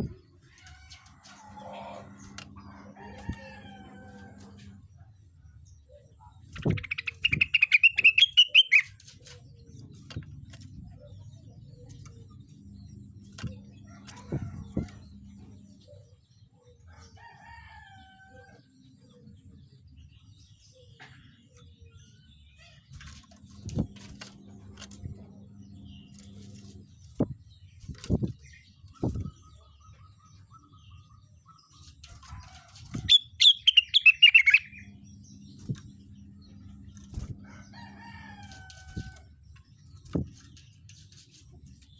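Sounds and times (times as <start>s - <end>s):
songbird chattering trill: 6.6s - 8.9s, 33.0s - 35.0s.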